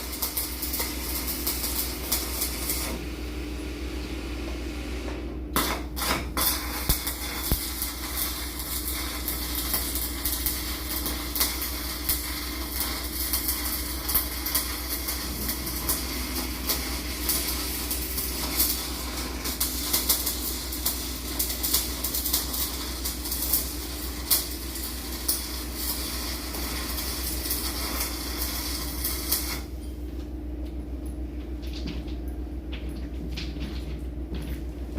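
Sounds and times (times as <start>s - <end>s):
welding arc crackling: 0.0s - 3.5s, 5.5s - 29.8s
low machinery hum: 0.0s - 34.9s.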